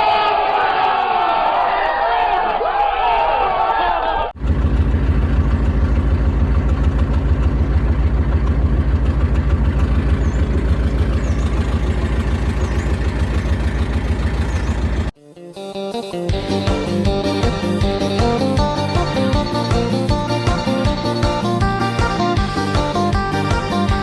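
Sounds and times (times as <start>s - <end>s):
vehicle engine running: 4.4s - 15.2s.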